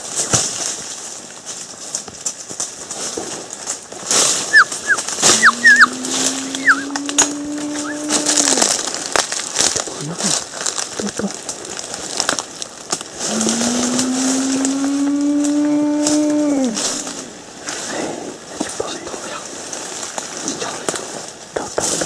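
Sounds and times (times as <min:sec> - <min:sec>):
rustling: 0:00.0 - 0:22.0
sharp bird chirps: 0:04.5 - 0:06.0, 0:06.6 - 0:07.0.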